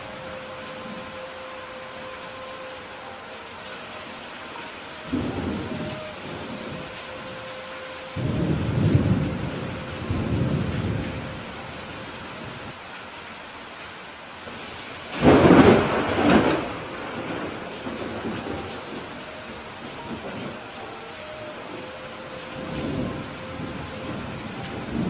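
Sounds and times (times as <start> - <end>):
steady rain: 0.0 - 25.0
thunder rumbling: 5.0 - 7.5, 8.1 - 12.7, 15.1 - 25.0.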